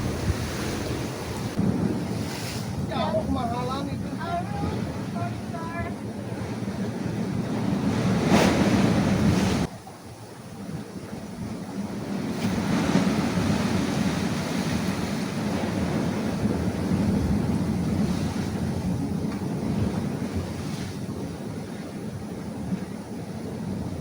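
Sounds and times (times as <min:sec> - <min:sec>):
sea surf breaking on rocks: 0:00.0 - 0:24.0
wind buffeting microphone: 0:00.0 - 0:24.0.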